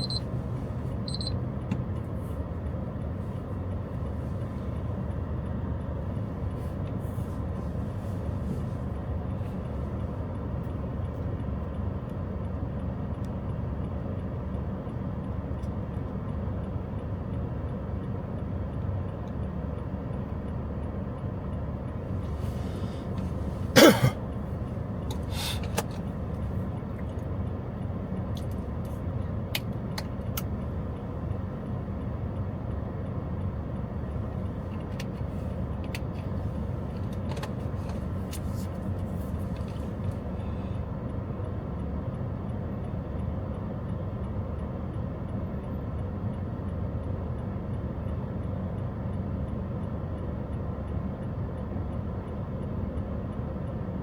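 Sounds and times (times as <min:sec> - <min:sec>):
vehicle rumble: 0:00.0 - 0:54.0.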